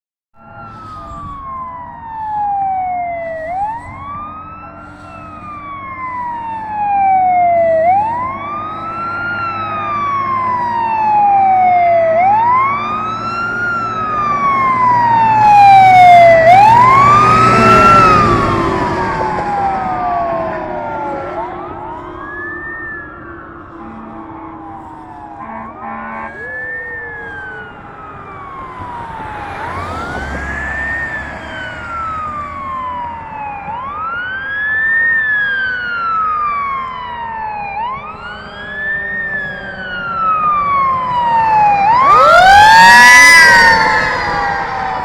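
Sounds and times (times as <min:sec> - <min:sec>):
fire truck siren wailing: 0:00.4 - 0:45.0
truck engine: 0:00.4 - 0:45.0.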